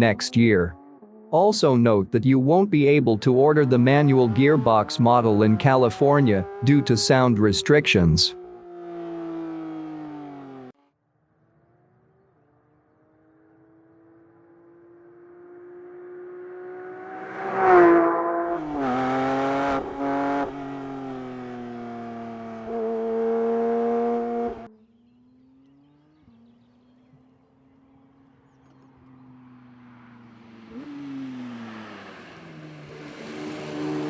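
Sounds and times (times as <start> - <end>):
sports car engine revving hard: 8.4 - 10.7, 16.6 - 24.7.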